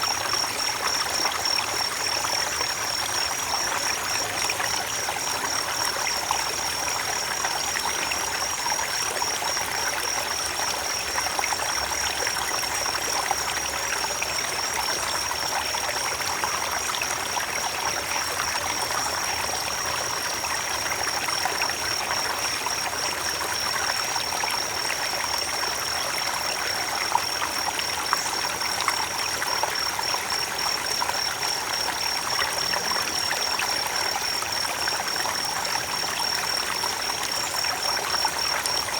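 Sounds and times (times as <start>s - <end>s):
creek water rushing over stones: 0.0s - 38.9s.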